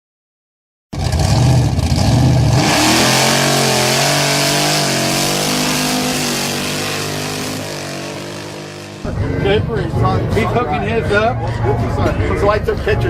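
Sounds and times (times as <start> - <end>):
car engine revving: 1.0 - 9.4.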